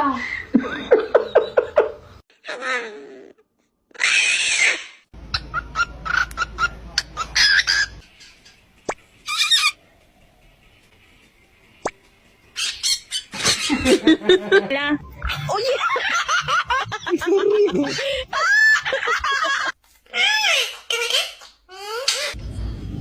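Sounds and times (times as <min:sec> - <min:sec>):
pet birds warbled calls: 0:04.0 - 0:08.6, 0:09.2 - 0:09.8, 0:12.5 - 0:13.8
bird harsh squawk: 0:09.2 - 0:09.8, 0:12.6 - 0:13.8.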